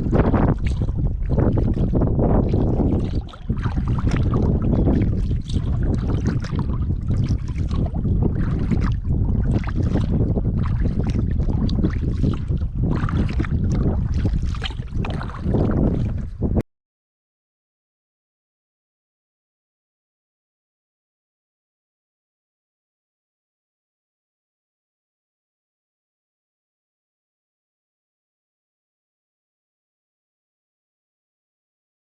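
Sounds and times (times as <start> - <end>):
kayak paddle splashing water: 0.0 - 16.4
wind rumbling on microphone: 0.0 - 16.6.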